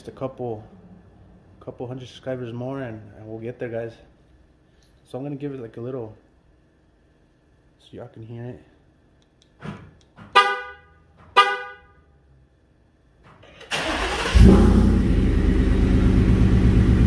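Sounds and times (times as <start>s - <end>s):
car horn chirps: 10.3s - 12.1s
car engine cranking and idling: 13.2s - 17.0s.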